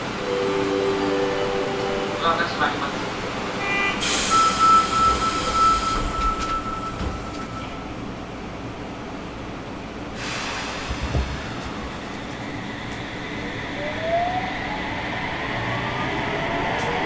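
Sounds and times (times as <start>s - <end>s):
train door air hiss: 4.0s - 7.5s, 10.2s - 12.2s.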